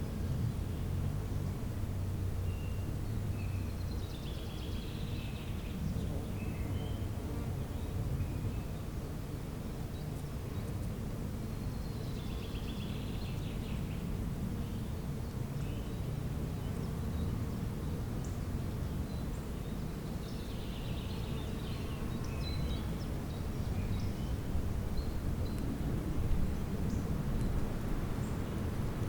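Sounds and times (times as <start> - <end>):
songbirds trilling: 11.5 - 29.0.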